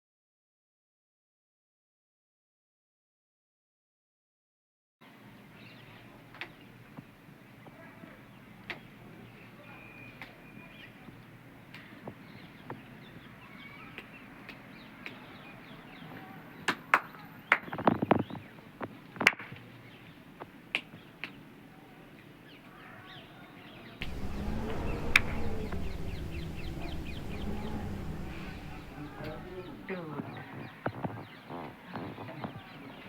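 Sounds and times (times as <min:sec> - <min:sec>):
birds chirping: 0:24.0 - 0:29.9
low wavering tone: 0:24.0 - 0:29.9
steady rumble: 0:24.0 - 0:29.9.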